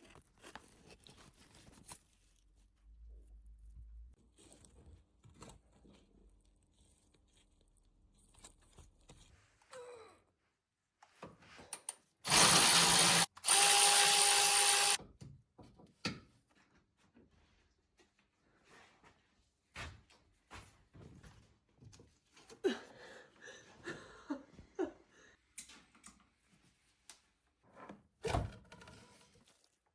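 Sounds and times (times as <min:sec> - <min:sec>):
handheld power tool running: 0:12.2 - 0:15.0.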